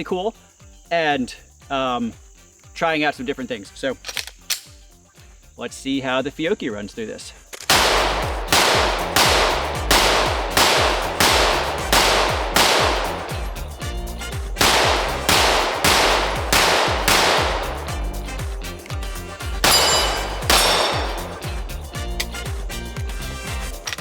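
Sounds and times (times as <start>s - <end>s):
pistol shots: 7.7s - 18.6s, 19.5s - 21.7s.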